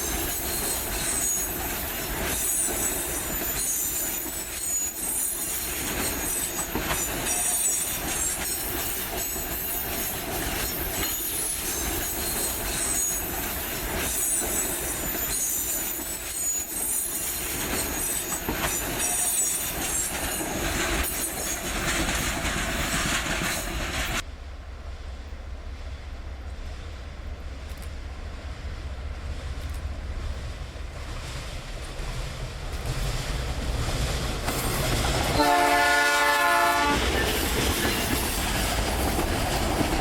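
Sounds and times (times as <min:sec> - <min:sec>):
train wheels squealing on rails: 0:00.0 - 0:24.2, 0:34.4 - 0:40.0
wheels clacking over rail joints: 0:00.0 - 0:24.3, 0:29.4 - 0:40.0.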